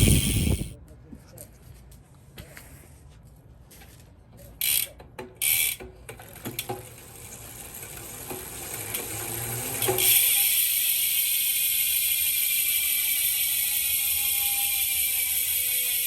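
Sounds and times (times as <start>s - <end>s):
bicycle freehub ratchet clicking: 0.0s - 0.7s, 4.6s - 16.0s.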